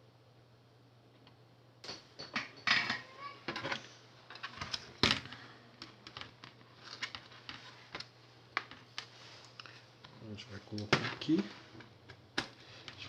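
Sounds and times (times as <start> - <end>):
hard objects clicking and knocking: 1.8 - 9.7.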